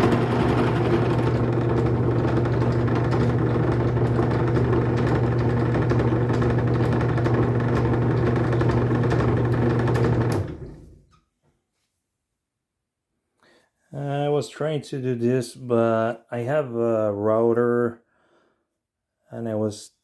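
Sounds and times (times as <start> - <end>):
drill press motor running: 0.0 - 11.0.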